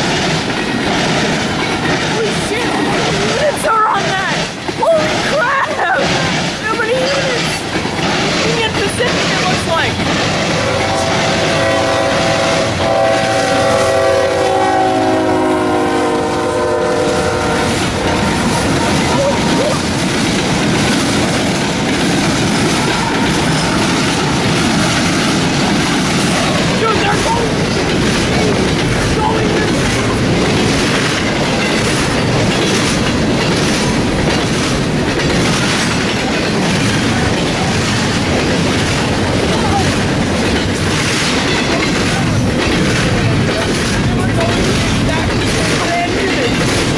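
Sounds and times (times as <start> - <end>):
passing train rumble: 0.0 - 46.9
locomotive air horn blast: 10.6 - 19.5.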